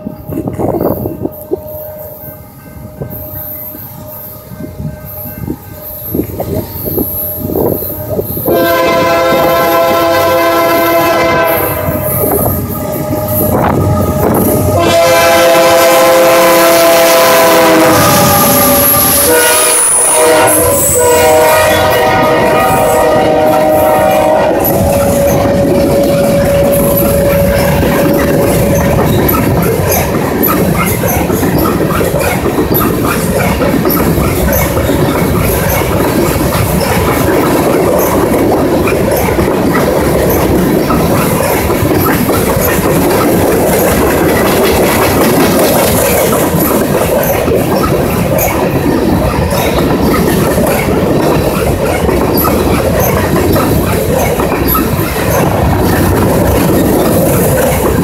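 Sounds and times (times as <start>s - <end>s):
freight train wheels rumbling: 0.0s - 58.0s
wheel squeaks: 24.6s - 58.0s.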